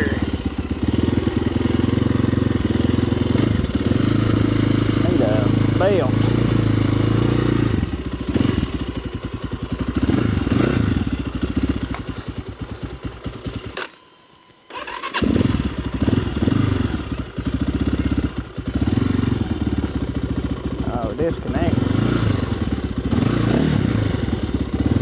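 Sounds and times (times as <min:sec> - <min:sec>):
dirt bike engine revving: 0:00.0 - 0:14.0, 0:14.7 - 0:25.0.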